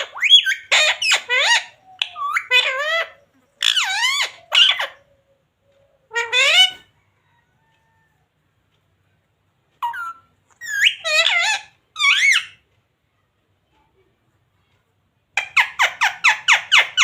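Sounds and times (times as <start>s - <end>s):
parrot calling: 0.0s - 8.0s, 9.8s - 12.6s, 15.4s - 17.0s.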